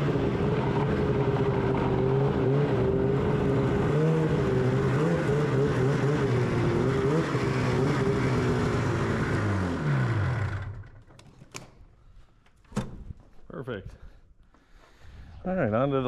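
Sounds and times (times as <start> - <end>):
snowmobile engine running: 0.0 - 11.0.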